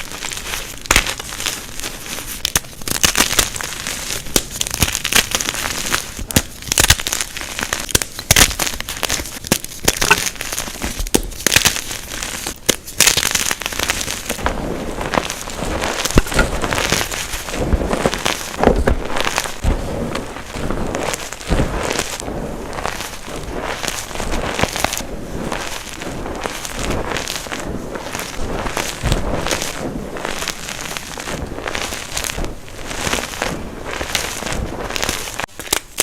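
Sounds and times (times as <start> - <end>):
chalk blocks crunching: 0.0 - 19.8
soft powdery rustle: 0.0 - 35.5.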